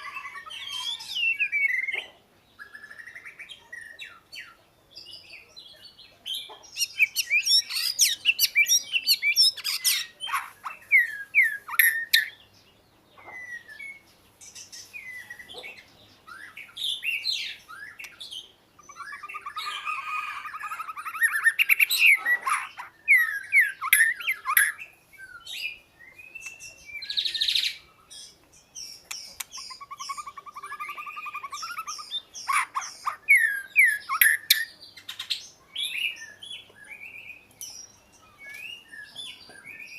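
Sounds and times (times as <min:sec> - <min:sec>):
bird singing whistled phrases: 0:00.0 - 0:02.0, 0:18.8 - 0:28.1, 0:29.0 - 0:39.9.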